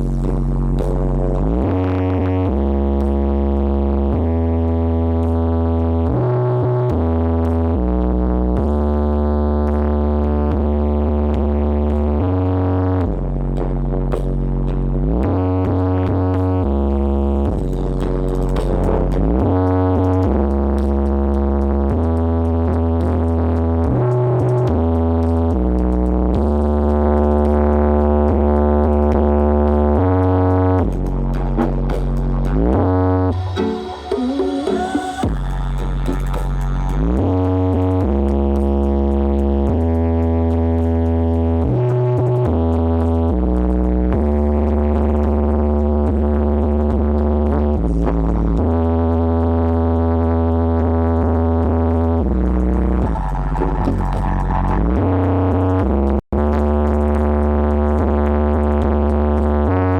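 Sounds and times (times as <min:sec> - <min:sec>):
electronic music with deep bass: 0:00.0 - 0:59.9
rising synth sweep: 0:30.8 - 0:38.1.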